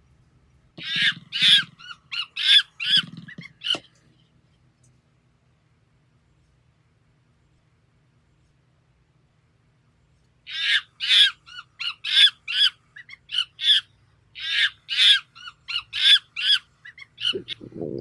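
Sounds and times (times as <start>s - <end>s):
harsh squawking calls: 0.8s - 4.0s, 10.5s - 17.8s.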